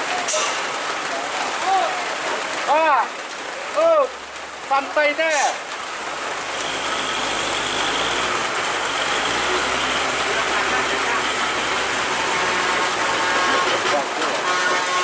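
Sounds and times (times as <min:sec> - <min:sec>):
rain hissing: 0:00.0 - 0:15.0
truck diesel engine running: 0:06.4 - 0:14.6.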